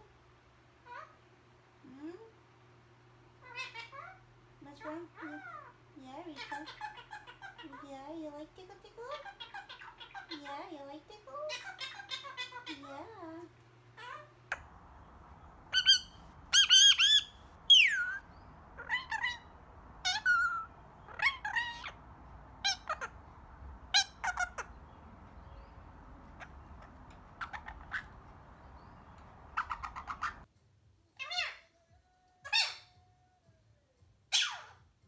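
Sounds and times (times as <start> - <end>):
parrot squawking and chirping: 3.4 - 7.9, 9.0 - 10.7, 11.4 - 13.1, 13.8 - 30.5, 31.2 - 31.7, 32.5 - 32.9, 34.3 - 34.8.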